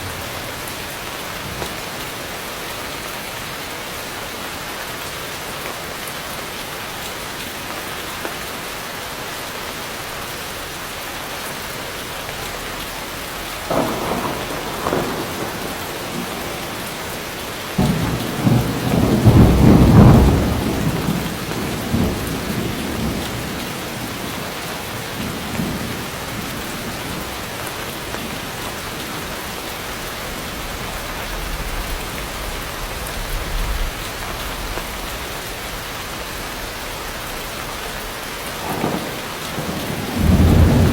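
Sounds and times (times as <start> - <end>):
heavy rain falling: 0.0 - 40.9
thunder rumbling: 13.6 - 40.9.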